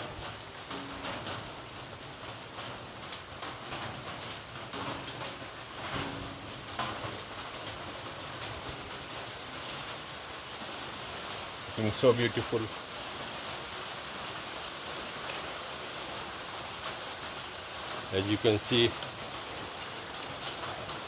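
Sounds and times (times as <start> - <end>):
faint drips and ticks: 0.0 - 21.0
light rain hissing: 0.0 - 21.0.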